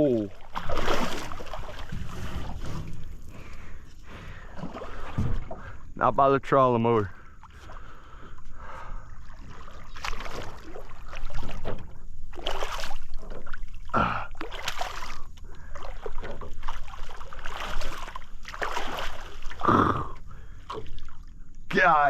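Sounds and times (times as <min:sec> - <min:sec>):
fish splashing in water: 0:00.0 - 0:03.4, 0:09.2 - 0:19.7.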